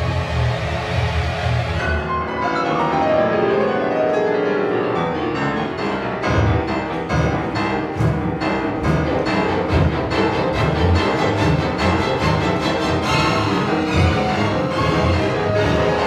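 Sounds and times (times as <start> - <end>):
piano and string orchestra: 0.0 - 16.0.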